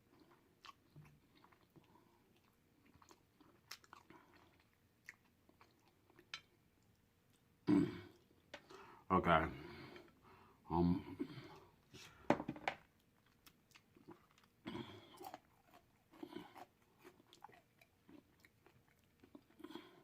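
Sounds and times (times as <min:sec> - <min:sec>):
person chewing crunchy food: 0:00.0 - 0:07.4, 0:12.9 - 0:20.0.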